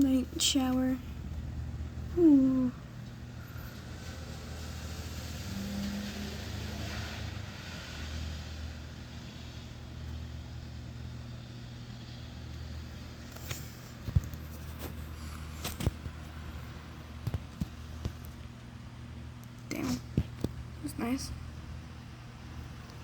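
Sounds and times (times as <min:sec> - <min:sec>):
steady low hum: 0:00.0 - 0:05.5, 0:07.4 - 0:23.0
light rain: 0:00.0 - 0:23.0
car tyres hissing on wet street: 0:03.3 - 0:16.8.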